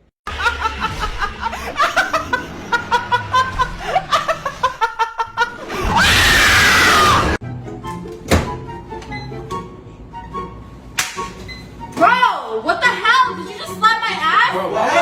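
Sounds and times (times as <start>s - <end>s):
person laughing: 0.3s - 6.0s
loud scream: 5.7s - 7.4s.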